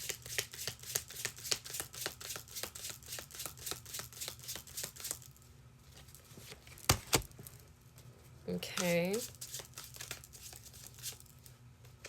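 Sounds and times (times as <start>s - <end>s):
cards being shuffled: 0.0s - 5.3s, 8.7s - 11.5s.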